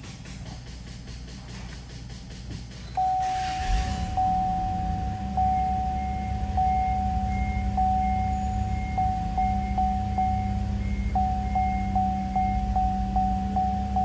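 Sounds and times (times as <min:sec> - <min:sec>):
car engine cranking and starting: 0:02.6 - 0:14.0
car warning chime: 0:03.0 - 0:14.0.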